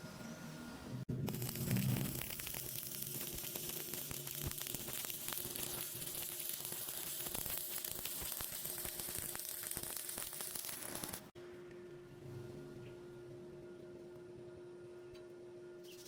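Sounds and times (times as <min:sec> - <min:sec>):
welding arc crackling and sizzling: 0:01.1 - 0:11.4.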